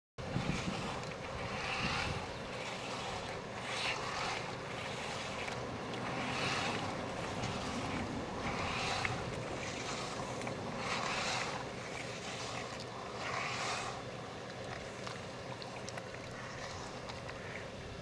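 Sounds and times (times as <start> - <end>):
wind noise on microphone: 0.2 - 4.4, 5.0 - 11.6
paddle swishing through water: 0.2 - 18.0.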